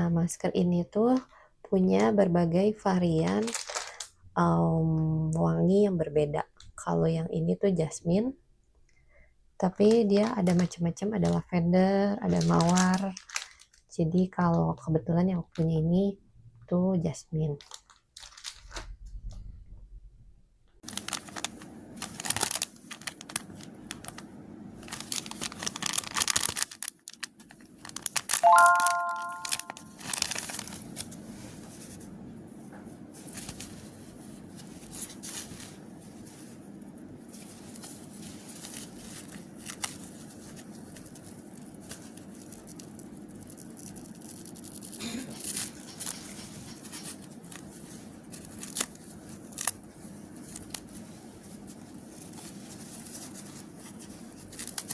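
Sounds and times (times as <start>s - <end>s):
packaging tearing and crinkling: 3.4s - 4.1s, 12.3s - 13.8s, 17.6s - 18.8s, 20.8s - 31.4s, 37.2s - 54.9s
brief ringing tone: 28.4s - 29.9s.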